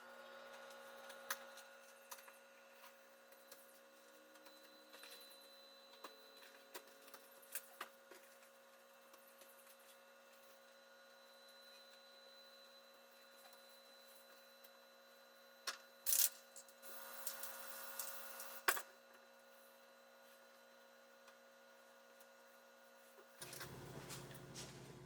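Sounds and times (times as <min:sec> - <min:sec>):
electrical hum: 0:23.3 - 0:25.0.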